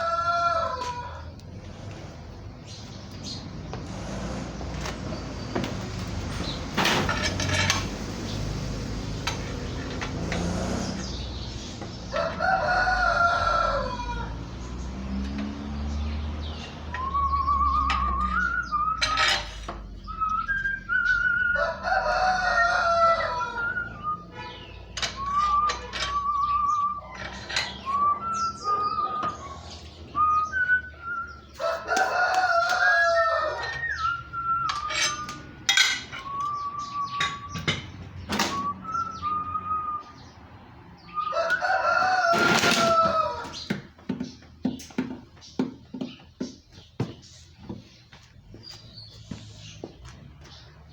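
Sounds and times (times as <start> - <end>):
rooster crowing: 0.0 - 1.4, 12.1 - 14.5, 21.4 - 24.2, 31.4 - 34.2, 41.2 - 43.7.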